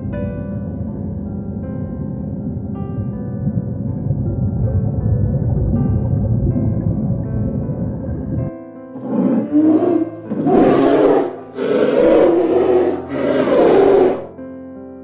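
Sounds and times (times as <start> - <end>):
soft keyboard background music: 0.0 - 15.0
animal rasping calls: 9.0 - 14.3.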